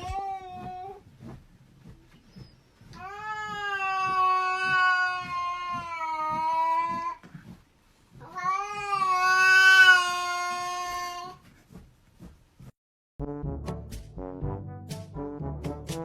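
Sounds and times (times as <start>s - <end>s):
cat yowling: 3.0s - 7.2s, 8.2s - 11.4s.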